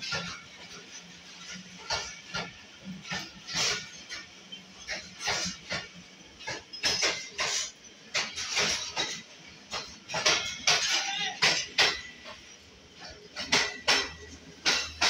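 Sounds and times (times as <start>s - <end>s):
train wheels clattering on rails: 0.0s - 15.0s.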